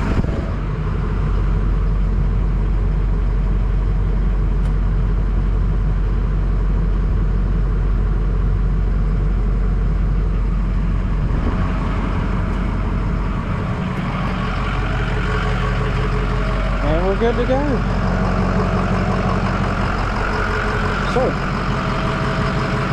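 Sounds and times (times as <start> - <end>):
diesel engine idling: 0.0 - 22.9.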